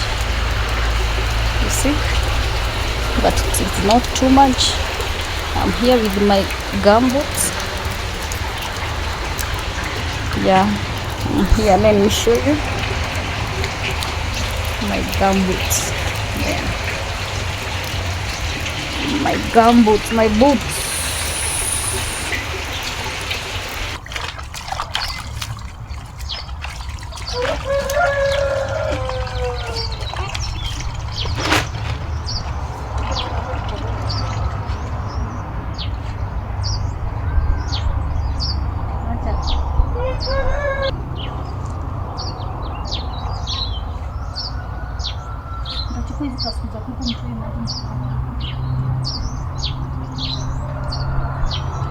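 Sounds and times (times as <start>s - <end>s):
drawn-out animal call: 0.0s - 24.0s, 38.9s - 41.0s
rain falling: 0.0s - 24.0s
small birds chirping: 0.0s - 24.0s, 29.4s - 51.2s
water dripping and trickling: 0.0s - 40.0s, 40.6s - 51.9s.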